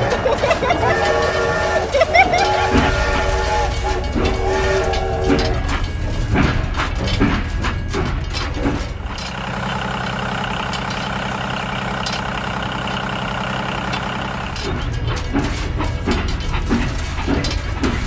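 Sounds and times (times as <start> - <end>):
clacking: 0.0 - 18.0
engine-like drone: 0.0 - 18.0.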